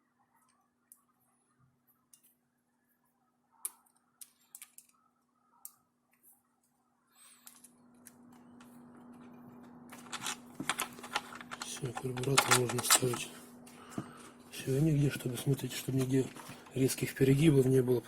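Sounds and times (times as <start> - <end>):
small parts clicking and tapping: 3.6 - 5.0, 7.4 - 9.3, 9.9 - 13.3.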